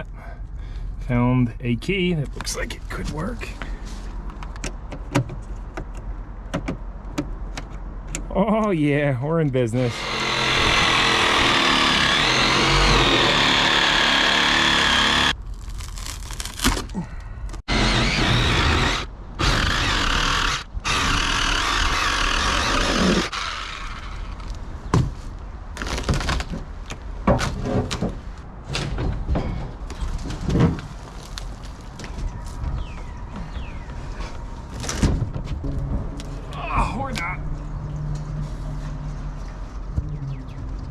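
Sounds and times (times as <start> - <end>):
power tool running: 9.8 - 16.6, 17.7 - 24.4
thunks and scrapes: 24.9 - 32.8.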